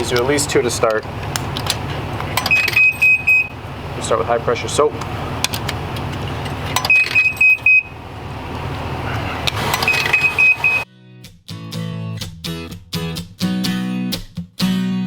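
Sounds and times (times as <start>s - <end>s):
clicks: 0.0s - 3.5s, 5.0s - 7.8s
low running hum: 0.0s - 10.8s
acoustic guitar music: 0.0s - 15.0s
short high electronic beeps: 2.5s - 3.5s, 6.9s - 7.9s, 9.8s - 10.8s.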